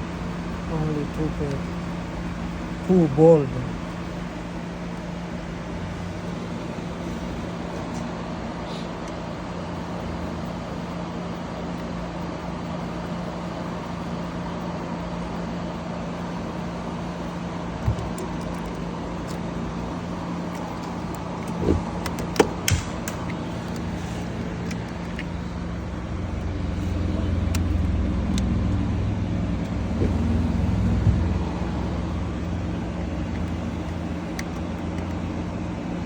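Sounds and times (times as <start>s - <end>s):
motor vehicle hum: 0.0s - 10.4s, 16.2s - 36.0s
sharp clicks and knocks: 20.5s - 25.4s
low rumble: 23.5s - 33.8s.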